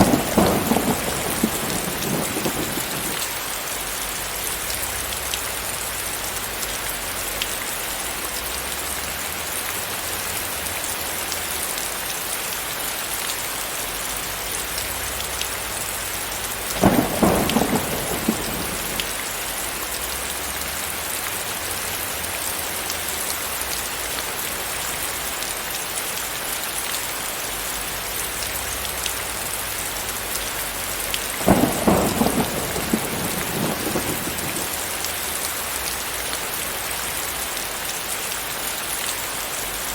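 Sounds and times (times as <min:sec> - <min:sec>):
thunder claps: 0:00.0 - 0:03.4, 0:16.7 - 0:19.4, 0:31.2 - 0:34.8
heavy rain: 0:00.0 - 0:39.9.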